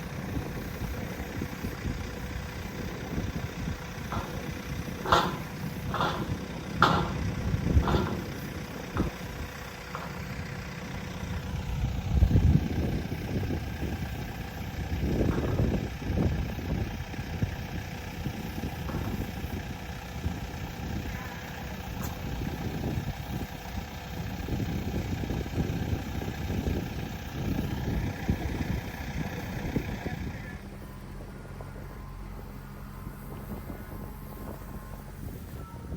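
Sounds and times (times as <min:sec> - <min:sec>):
tractor engine idling: 0:00.0 - 0:35.9
knocks and clanks: 0:04.0 - 0:11.1, 0:18.8 - 0:19.6.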